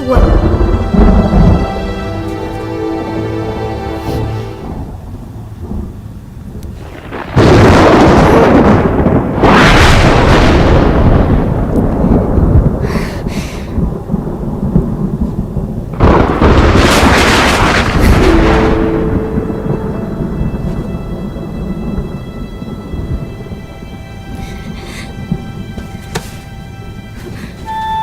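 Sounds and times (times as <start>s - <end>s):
thunderclaps with rolling rumble: 0.0s - 3.4s, 4.5s - 27.6s.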